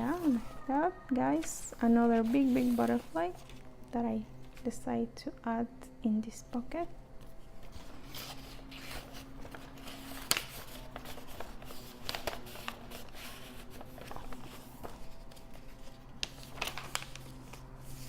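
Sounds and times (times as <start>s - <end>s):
paper and card rustling: 0.0s - 0.7s, 1.3s - 3.7s, 7.2s - 18.0s
faint steady hum: 0.0s - 18.0s.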